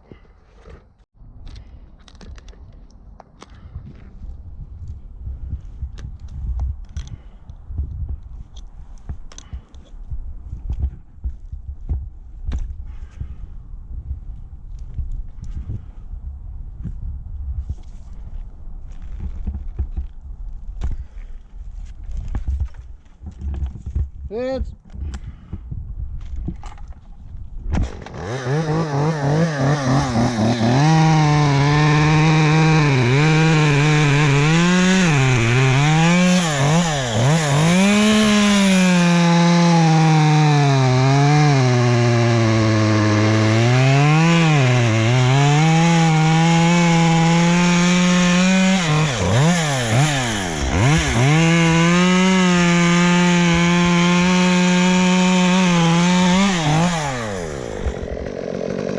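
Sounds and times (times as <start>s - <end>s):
chainsaw revving: 27.8s - 58.9s.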